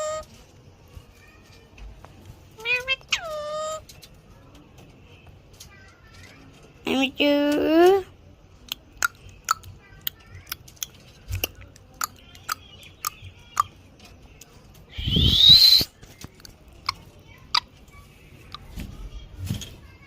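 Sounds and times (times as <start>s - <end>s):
parrot squawk: 2.6s - 3.8s
parrot clicking: 8.7s - 13.8s, 16.4s - 17.7s.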